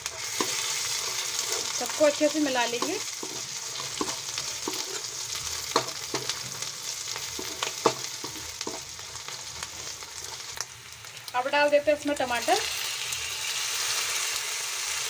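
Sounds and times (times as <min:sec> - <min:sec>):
metal spoon scraping a pan: 0:00.0 - 0:10.5
onions sizzling in hot oil: 0:00.0 - 0:15.0.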